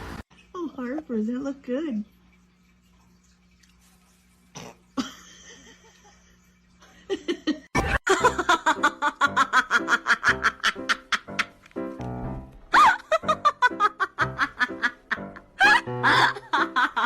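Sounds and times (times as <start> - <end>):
person laughing hard: 7.3 - 11.6, 12.7 - 17.0.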